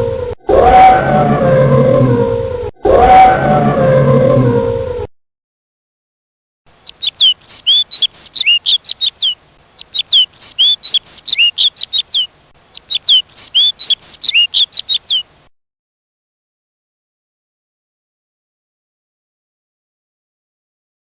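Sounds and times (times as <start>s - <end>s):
songbird chirping: 6.7s - 15.5s.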